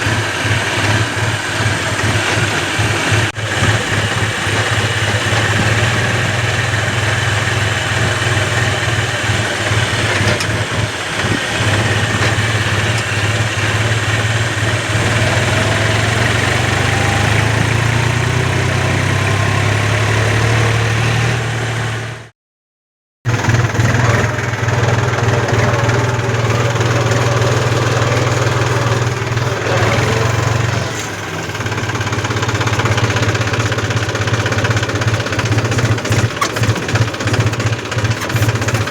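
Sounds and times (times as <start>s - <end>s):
tractor diesel engine running: 0.0s - 22.3s, 23.3s - 38.9s.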